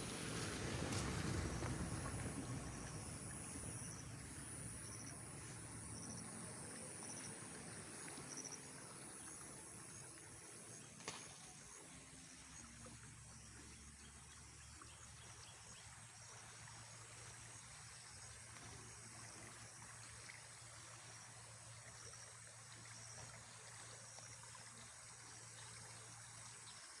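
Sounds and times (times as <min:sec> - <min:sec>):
low steady hum: 0:00.0 - 0:27.0
insects chirring: 0:00.1 - 0:12.8, 0:15.2 - 0:26.7.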